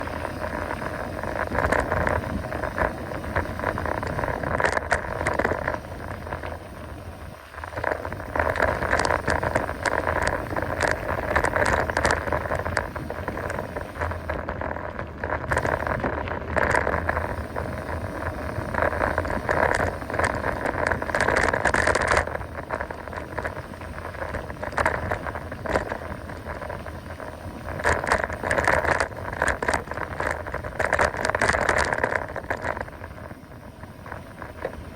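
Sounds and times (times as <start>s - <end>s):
bike frame and chain rattling: 0.0s - 34.9s
mountain bike tyres on dirt: 0.0s - 34.9s.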